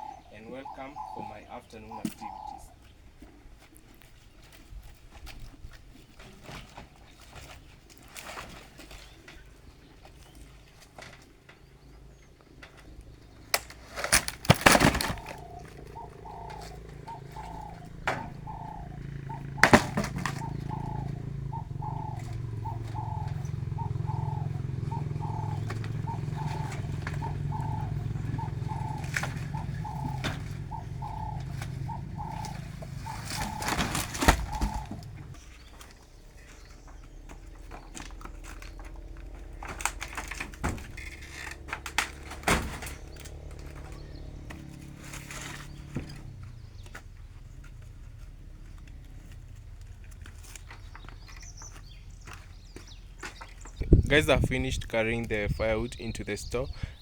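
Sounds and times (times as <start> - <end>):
firewood logs knocking: 19.3 - 20.8.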